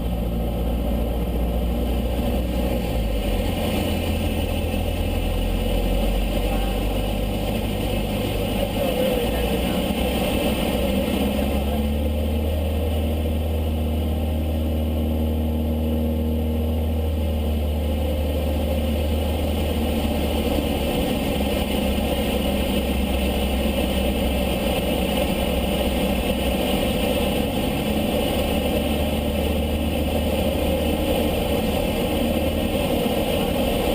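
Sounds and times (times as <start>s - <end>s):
propeller plane engine drone: 0.0s - 33.9s.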